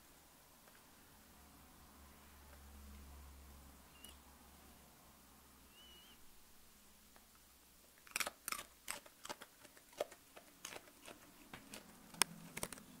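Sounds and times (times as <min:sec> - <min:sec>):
dog crunching carrot: 0:07.9 - 0:13.0.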